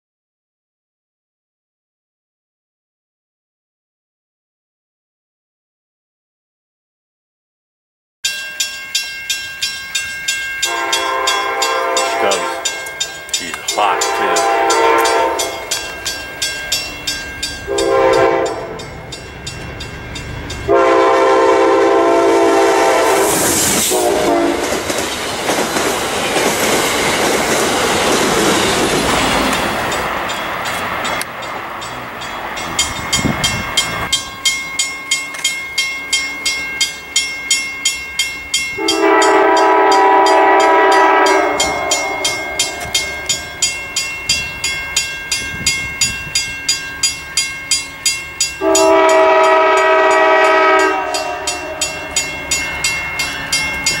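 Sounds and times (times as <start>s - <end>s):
railroad crossing bell ringing: 8.2s - 23.2s, 26.2s - 54.0s
train horn: 10.6s - 15.8s, 17.7s - 19.0s, 20.7s - 24.8s, 38.8s - 43.2s, 48.6s - 52.3s
train wheels rushing on rail: 10.6s - 54.0s.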